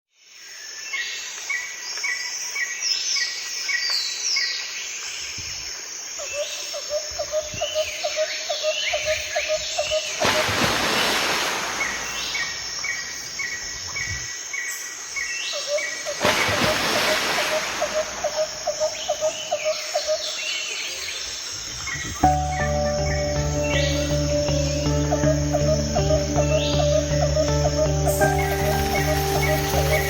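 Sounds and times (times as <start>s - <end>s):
birds singing and chirping: 6.3s - 30.0s
fast pulsing bird call: 16.5s - 20.2s, 22.9s - 30.0s.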